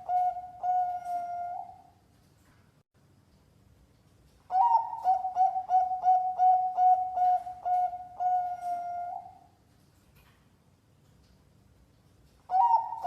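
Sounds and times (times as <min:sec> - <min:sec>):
dove cooing: 0:00.0 - 0:01.9, 0:04.5 - 0:09.5, 0:12.5 - 0:13.0.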